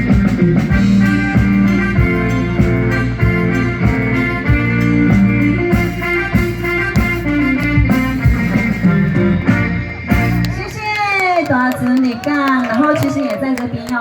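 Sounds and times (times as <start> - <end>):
instrumental pop backing music: 0.0 - 12.0.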